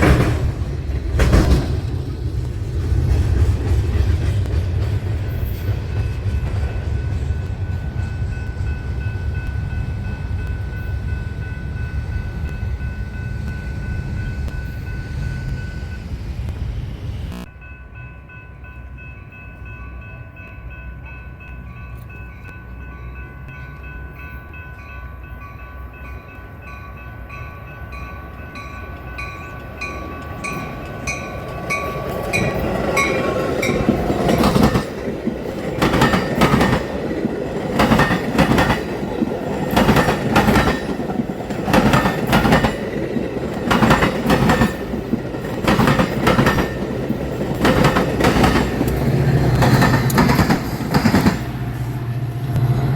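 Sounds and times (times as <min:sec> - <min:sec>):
train wheels clattering over joints: 0:00.0 - 0:07.8, 0:28.4 - 0:51.6
train passing: 0:00.0 - 0:52.9.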